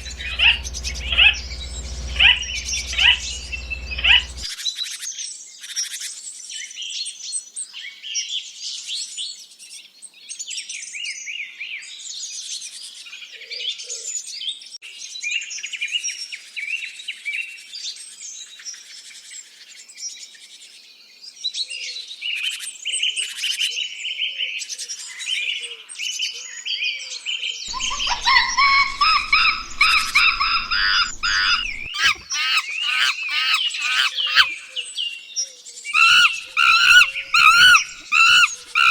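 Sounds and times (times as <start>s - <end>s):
faint low rumble: 0.0s - 4.5s
lower-pitched bird calls: 0.0s - 4.5s, 27.7s - 34.8s, 36.0s - 38.9s
small birds chirping: 0.0s - 4.5s, 27.7s - 34.8s, 36.0s - 38.9s.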